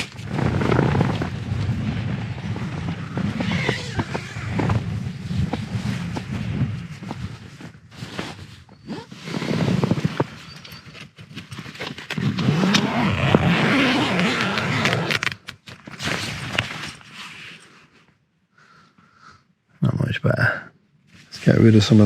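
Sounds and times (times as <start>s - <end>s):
wind rumbling on microphone: 0.0s - 10.5s
tent fabric flapping in wind: 0.0s - 17.8s.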